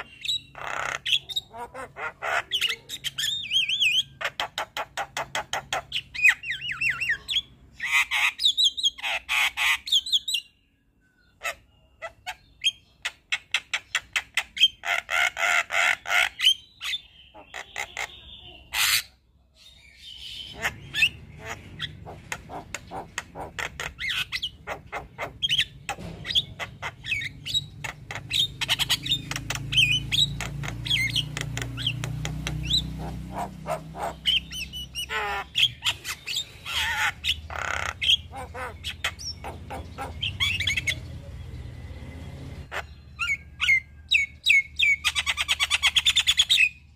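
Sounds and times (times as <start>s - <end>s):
bird singing clicks and squawks: 11.4s - 19.1s, 20.5s - 41.1s
bird fast trill: 19.9s - 41.1s.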